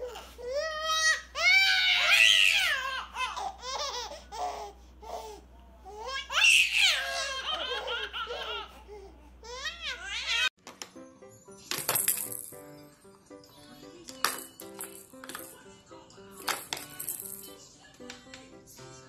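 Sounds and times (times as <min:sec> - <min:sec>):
baby laughing: 0:01.4 - 0:04.8, 0:06.0 - 0:10.5.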